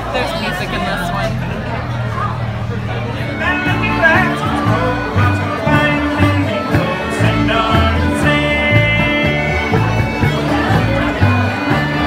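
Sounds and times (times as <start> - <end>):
bluegrass band playing: 0.0 - 12.0
plucked bass notes: 0.0 - 12.0.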